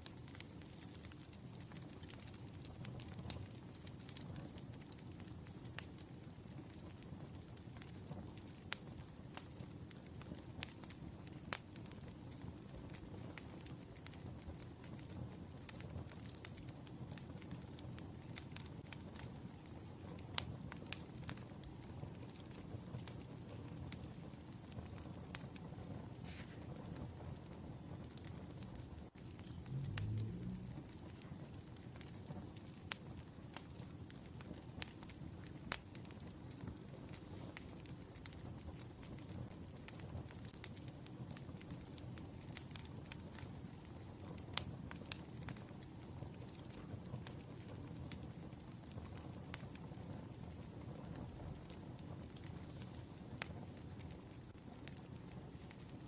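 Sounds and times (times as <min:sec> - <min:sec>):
wood fire popping: 0:00.0 - 0:56.0
burning logs rumbling: 0:05.0 - 0:56.0
firewood crackling pops: 0:20.2 - 0:45.8.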